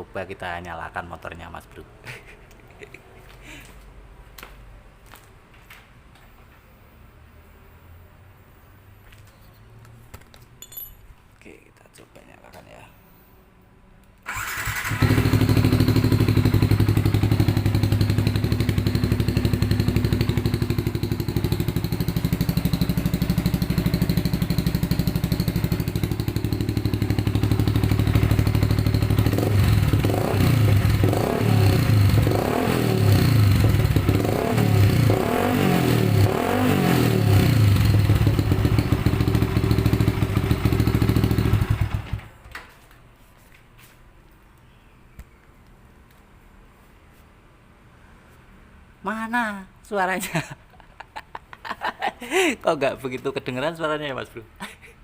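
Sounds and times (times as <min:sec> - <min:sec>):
motorcycle engine starting and revving: 0:14.2 - 0:42.4.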